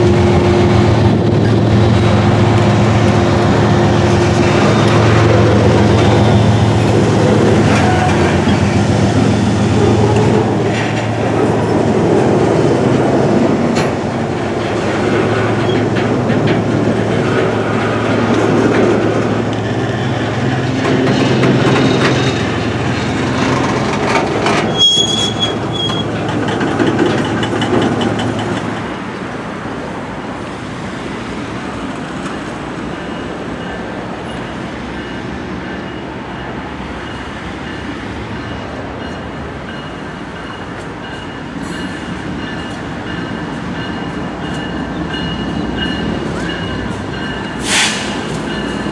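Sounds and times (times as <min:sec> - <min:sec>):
diesel locomotive engine drone: 0:00.0 - 0:48.9
train wheels rolling on rails: 0:00.0 - 0:48.9
high wheel squeal: 0:03.5 - 0:11.9, 0:24.4 - 0:26.4.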